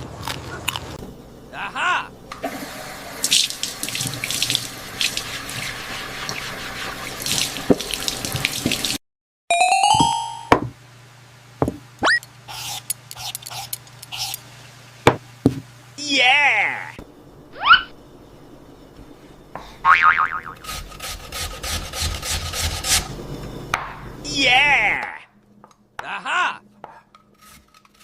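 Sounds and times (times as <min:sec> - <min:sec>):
running water from tap: 0:02.5 - 0:09.0
low steady hum: 0:10.1 - 0:21.3.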